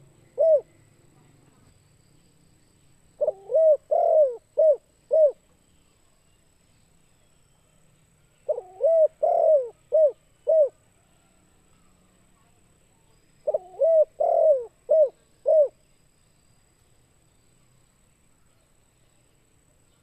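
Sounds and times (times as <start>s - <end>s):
dove cooing: 0.0s - 0.8s, 3.2s - 5.4s, 8.5s - 10.9s, 13.4s - 15.8s.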